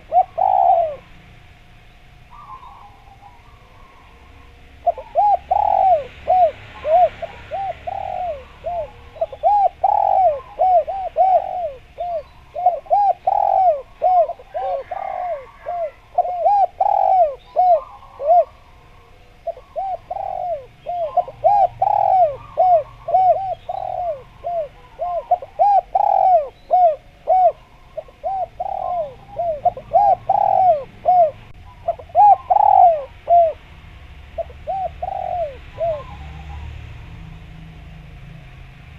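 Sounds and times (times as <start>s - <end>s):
dove cooing: 0.0s - 1.3s, 2.2s - 37.0s.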